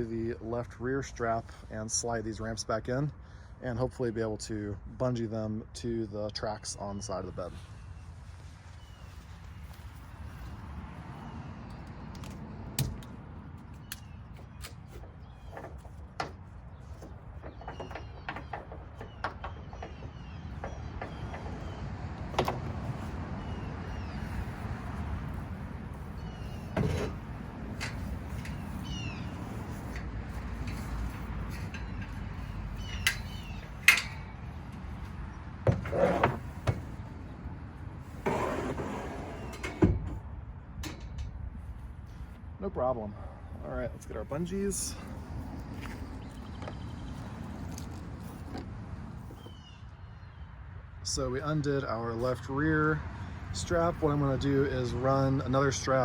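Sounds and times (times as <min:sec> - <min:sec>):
ramps scraping: 0:12.3 - 0:42.4
metal ramps clunking: 0:15.0 - 0:37.2, 0:38.0 - 0:41.6.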